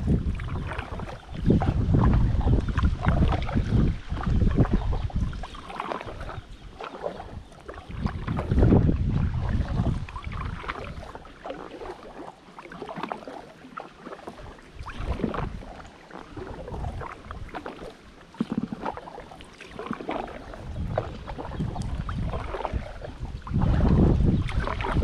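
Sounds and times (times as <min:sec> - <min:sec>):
wind rumble on microphone: 0:00.0 - 0:12.0, 0:14.3 - 0:19.2, 0:19.8 - 0:25.0
paddle splashing through water: 0:00.0 - 0:25.0.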